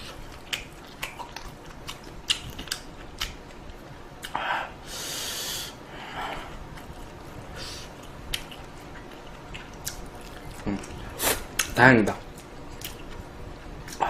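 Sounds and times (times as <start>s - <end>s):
wet mouth clicks chewing: 0.3s - 3.4s.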